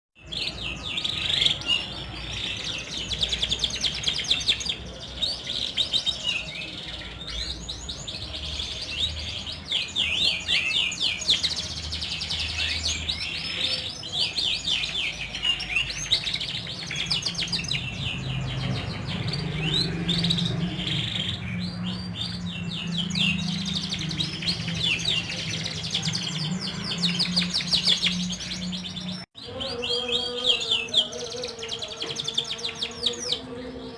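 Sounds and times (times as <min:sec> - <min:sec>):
canary singing trills: 0:00.2 - 0:33.9.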